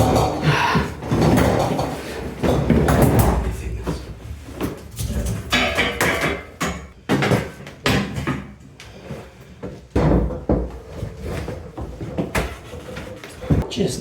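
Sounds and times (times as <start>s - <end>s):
refrigerator scraping on stairs: 0.0s - 6.1s, 8.6s - 13.7s.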